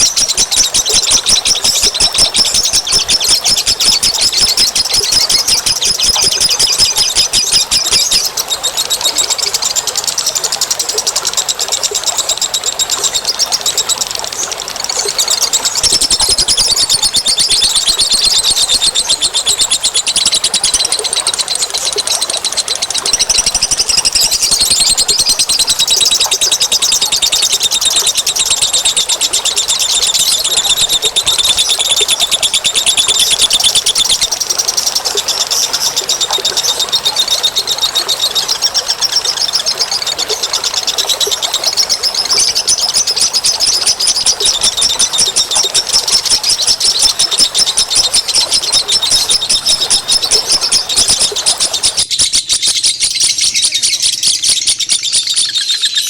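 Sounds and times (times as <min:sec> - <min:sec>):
small birds trilling chatter: 0:00.0 - 0:56.0.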